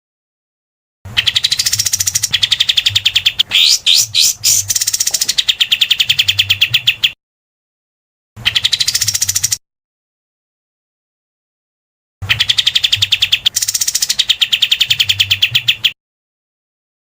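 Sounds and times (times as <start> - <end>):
upward-sweeping bird whistles: 1.2 - 7.2.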